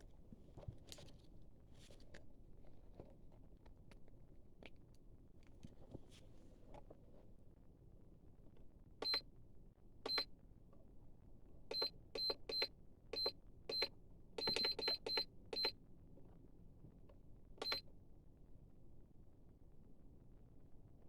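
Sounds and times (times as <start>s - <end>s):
short electronic beeps: 11.7s - 15.8s.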